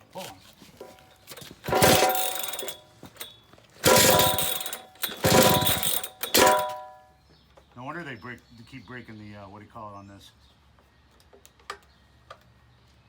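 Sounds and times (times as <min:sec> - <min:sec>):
concrete saw grinding whine: 0:00.8 - 0:06.9.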